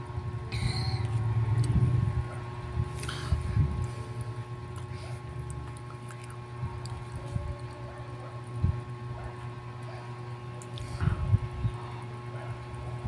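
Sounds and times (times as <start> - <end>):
faint steady hum: 0.0 - 13.0
chewing bread: 4.6 - 8.6.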